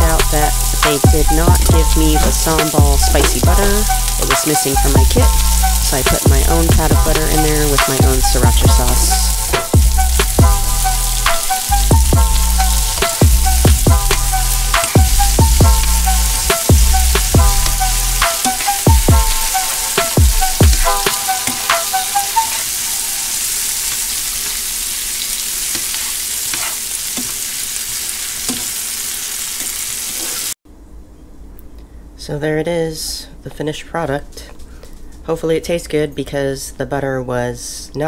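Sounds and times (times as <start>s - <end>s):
music with deep drum hits: 0.0s - 21.9s
food sizzling in a frying pan: 0.0s - 30.6s
tongs stirring and tossing food: 0.3s - 30.5s.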